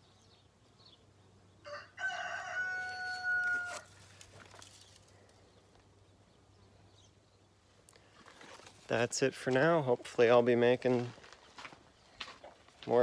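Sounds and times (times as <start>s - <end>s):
rooster crowing: 1.6s - 4.0s.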